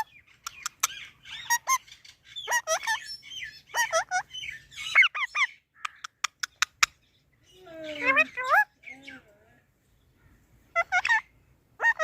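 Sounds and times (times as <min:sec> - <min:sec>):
parrot squawking: 0:00.0 - 0:07.0, 0:07.9 - 0:09.2, 0:10.7 - 0:12.0.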